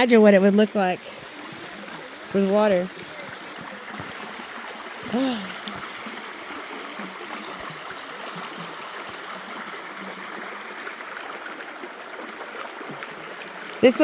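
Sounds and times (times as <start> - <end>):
water running over waterfall: 0.0 - 14.0
person humming briefly: 5.1 - 5.6.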